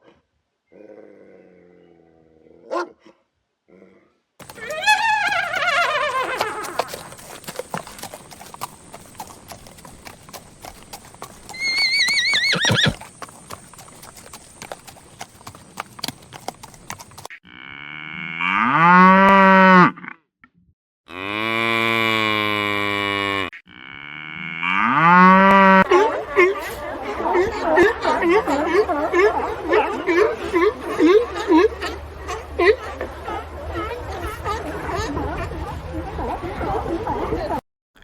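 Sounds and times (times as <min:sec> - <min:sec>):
cattle mooing: 0:04.4 - 0:08.7.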